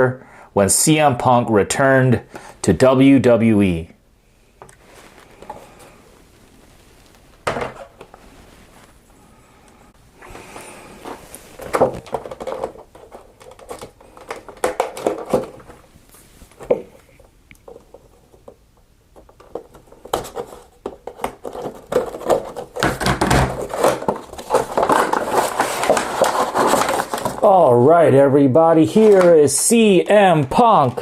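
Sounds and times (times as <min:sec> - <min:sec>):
plastic packaging crinkling: 0:10.4 - 0:17.0, 0:19.4 - 0:27.6, 0:28.8 - 0:29.9
packaging rustling and crackling: 0:10.4 - 0:18.6, 0:19.2 - 0:27.6, 0:28.9 - 0:29.9
cardboard box being opened: 0:21.4 - 0:27.5.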